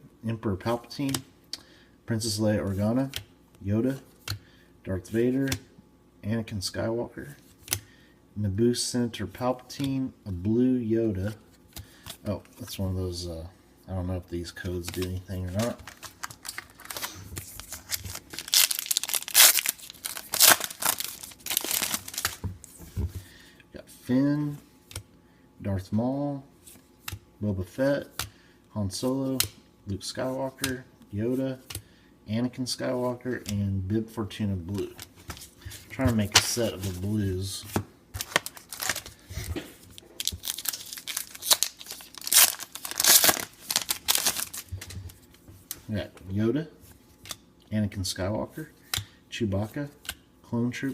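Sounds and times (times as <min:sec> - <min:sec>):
foil wrapper tearing and crinkling: 0:15.9 - 0:22.4, 0:38.2 - 0:39.1, 0:40.2 - 0:44.7.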